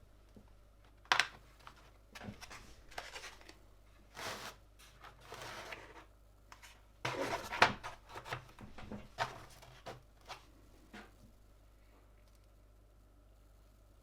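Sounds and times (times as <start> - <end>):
plastic scraping and rubbing: 1.6 - 10.5.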